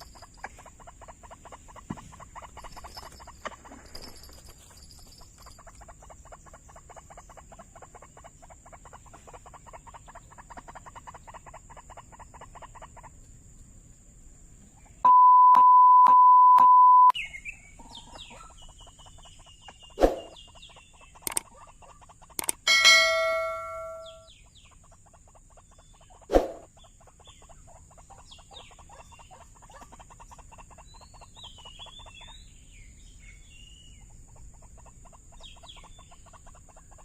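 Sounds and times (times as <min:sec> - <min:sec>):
loud steady beep: 0:15.1 - 0:17.1, 0:22.4 - 0:24.3
waterhen pulsed calls: 0:21.2 - 0:24.3
short gliding bird calls: 0:22.4 - 0:24.3.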